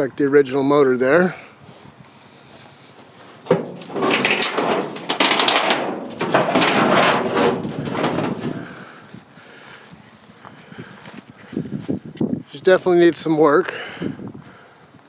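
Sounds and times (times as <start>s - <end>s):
scraping and clattering: 3.4s - 8.9s.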